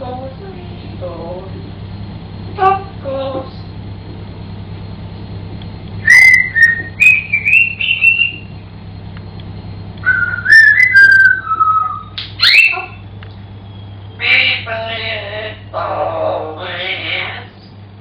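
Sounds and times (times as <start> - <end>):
parrot whistling: 6.0 - 8.6, 10.0 - 13.0.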